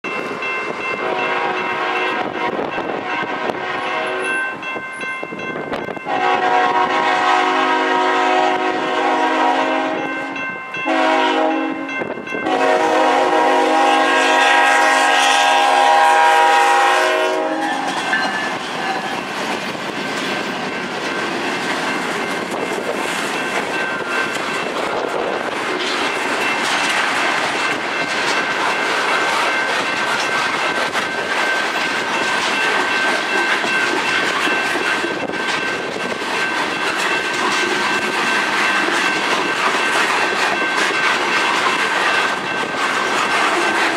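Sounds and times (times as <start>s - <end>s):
faint crossing bell ringing: 0.0s - 3.2s, 3.9s - 6.3s, 9.8s - 12.7s, 18.0s - 19.0s, 20.0s - 24.8s, 27.4s - 42.9s
train wheels clattering on rails: 0.0s - 43.9s
diesel locomotive horn: 0.9s - 4.5s, 6.1s - 18.3s.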